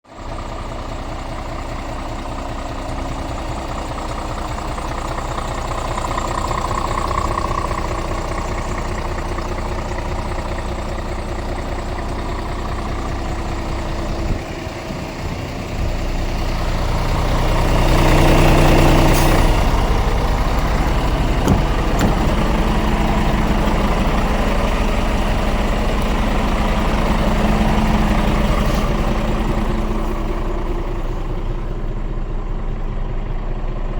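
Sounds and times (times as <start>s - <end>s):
truck diesel engine idling: 0.0s - 33.9s.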